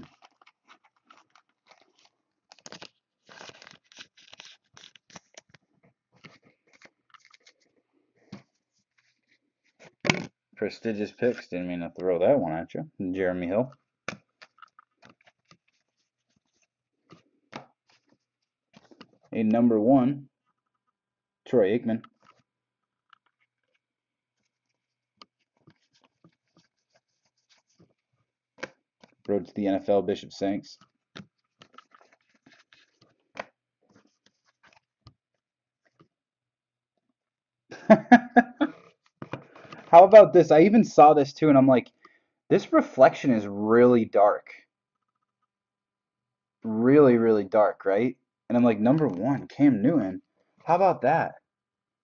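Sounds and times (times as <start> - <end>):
trading cards rustling and scraping: 0.0 - 12.2, 13.3 - 19.3, 22.1 - 29.8, 30.4 - 36.1, 38.6 - 40.2.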